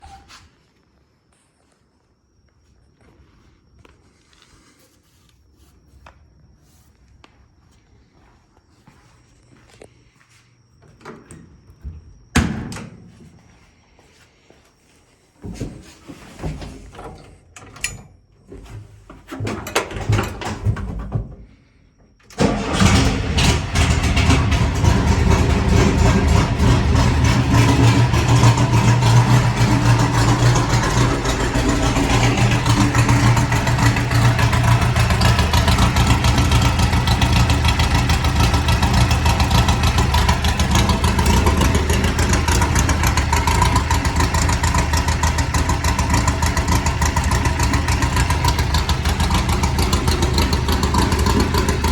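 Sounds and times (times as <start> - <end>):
car engine starting and running: 22.3 - 51.9.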